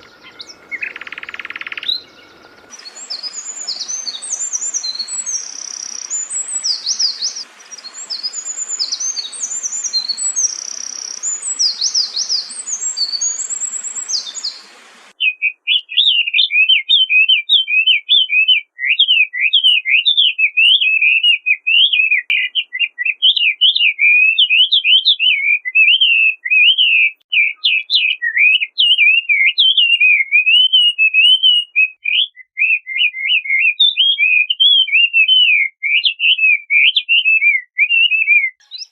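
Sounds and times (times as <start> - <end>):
bird warbling: 0.0 - 14.7
bird singing high quick phrases: 0.0 - 38.9
faint hiss: 2.6 - 15.1.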